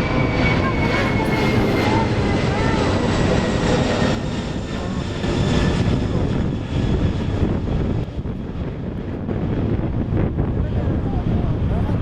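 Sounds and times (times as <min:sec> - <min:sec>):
jet engines deep rumble: 0:00.0 - 0:12.0
jet engine hiss: 0:00.5 - 0:02.8.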